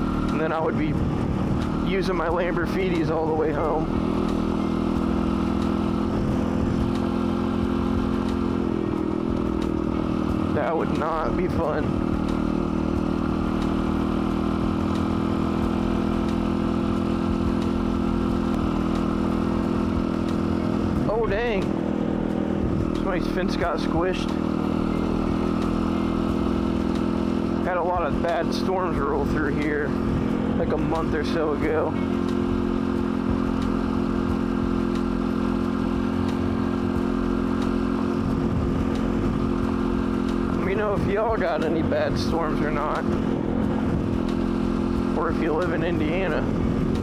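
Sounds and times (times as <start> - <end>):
dirt bike engine running: 0.0 - 47.0.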